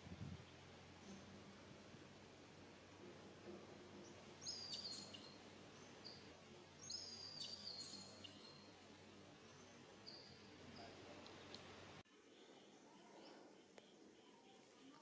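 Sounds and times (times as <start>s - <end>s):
faint outdoor background hush: 0.0s - 15.0s
high-pitched bird song: 4.4s - 6.2s, 6.8s - 8.7s.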